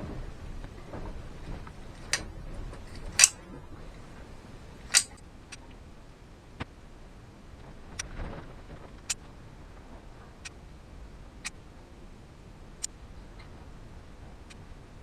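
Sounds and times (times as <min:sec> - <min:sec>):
tools clicking and knocking: 0:02.0 - 0:02.3, 0:02.9 - 0:03.4, 0:04.9 - 0:05.2.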